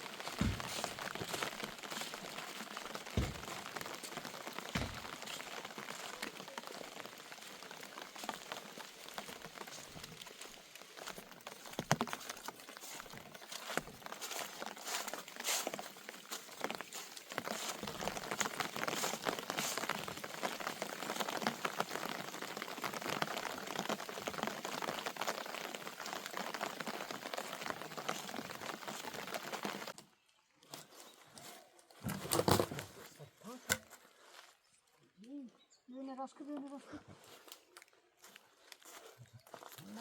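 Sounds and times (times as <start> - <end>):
rain pattering: 0.0 - 30.0.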